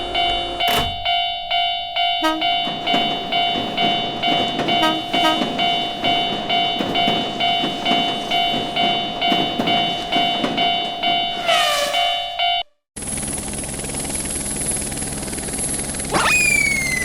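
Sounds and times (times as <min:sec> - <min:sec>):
passing train rumble: 0:00.0 - 0:12.5
railroad crossing bell dinging: 0:00.0 - 0:12.8.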